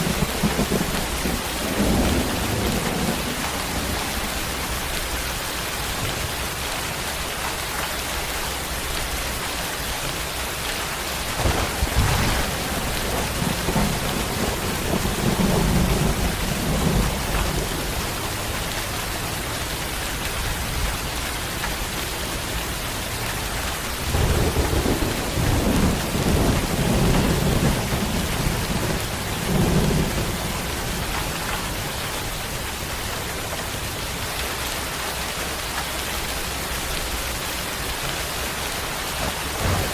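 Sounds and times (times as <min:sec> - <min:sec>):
thunder rumbling: 0:00.0 - 0:06.6, 0:11.0 - 0:22.2, 0:23.5 - 0:33.9, 0:38.9 - 0:39.9
heavy rain hissing: 0:00.0 - 0:39.9.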